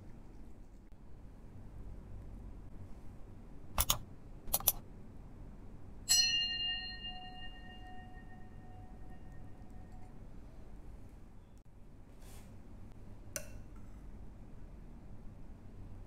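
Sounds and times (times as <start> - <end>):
mouse click sound effects: 3.8 - 4.8
bell ding: 6.1 - 9.7.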